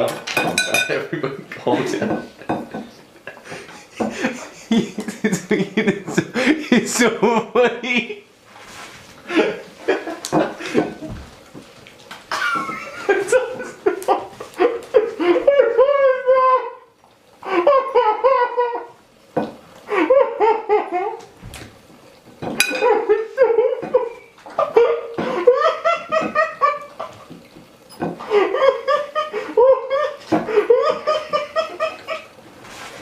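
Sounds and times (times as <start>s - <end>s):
person laughing hysterically: 3.3s - 8.2s, 9.2s - 11.2s, 12.3s - 18.9s, 19.9s - 21.3s, 22.7s - 27.4s, 28.2s - 32.4s.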